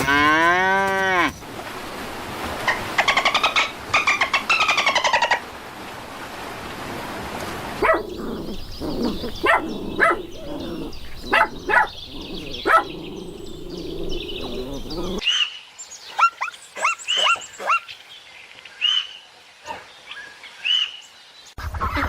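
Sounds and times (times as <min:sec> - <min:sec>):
animal chattering calls: 0:07.8 - 0:15.2
sharp animal calls: 0:07.8 - 0:15.2.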